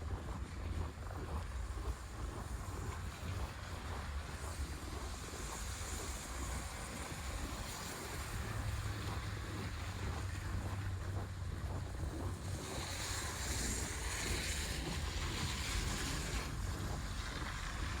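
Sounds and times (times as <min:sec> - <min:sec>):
wind on the microphone: 0:00.0 - 0:18.0.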